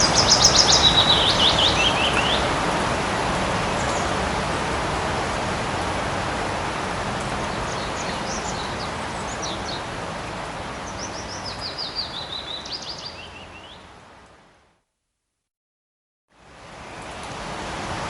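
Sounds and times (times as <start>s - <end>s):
small birds chirping: 0.0s - 2.5s, 7.5s - 9.9s, 10.8s - 13.9s
light rain in forest: 0.0s - 15.4s, 16.3s - 18.0s.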